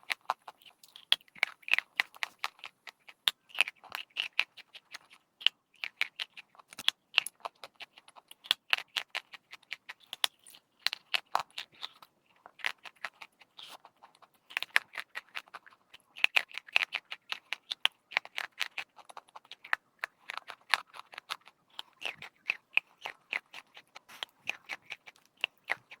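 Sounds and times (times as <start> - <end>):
chalk crunching: 18.6 - 25.9.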